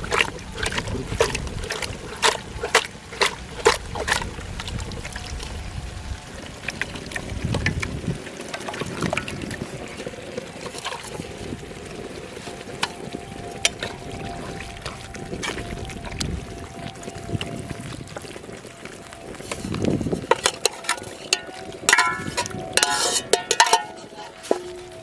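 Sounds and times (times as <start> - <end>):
metal ladle knocking on pan: 20.3 - 24.6.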